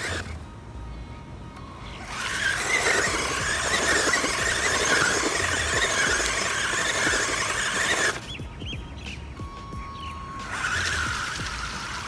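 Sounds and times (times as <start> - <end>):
tyres churning wet dirt: 0.0 - 0.4, 2.0 - 8.5, 10.4 - 12.0
rc truck motor whining: 0.0 - 12.0.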